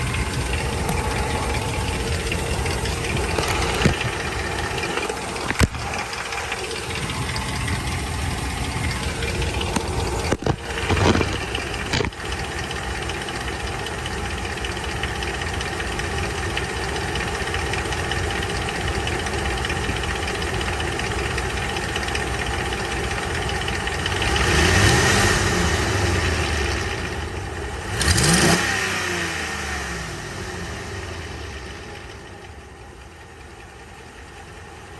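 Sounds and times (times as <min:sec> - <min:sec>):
engine revving: 0:00.0 - 0:13.8, 0:24.0 - 0:32.1
engine knocking: 0:00.0 - 0:34.9
pickup engine idling: 0:00.0 - 0:34.9.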